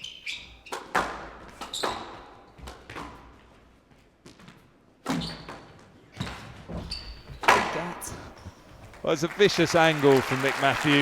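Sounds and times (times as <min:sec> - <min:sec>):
squash ball hitting rackets and walls: 0:00.6 - 0:03.5, 0:04.3 - 0:07.9.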